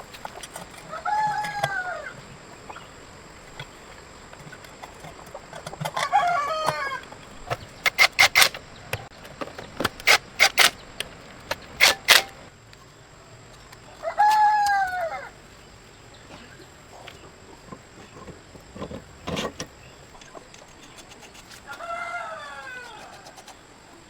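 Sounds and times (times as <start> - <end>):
rooster crowing: 0.8 - 2.3, 5.9 - 7.2, 13.9 - 15.4, 21.6 - 23.6.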